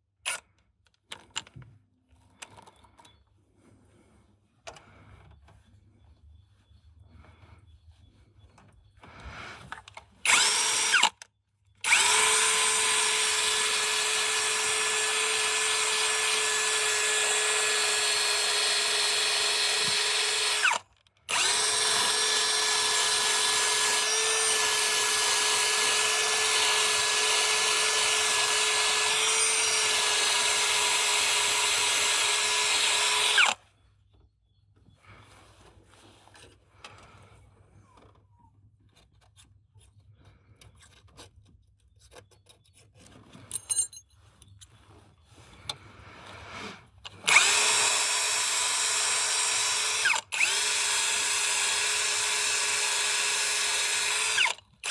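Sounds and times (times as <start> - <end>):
electric drill whining: 10.2 - 11.2, 11.8 - 33.6, 47.1 - 54.9.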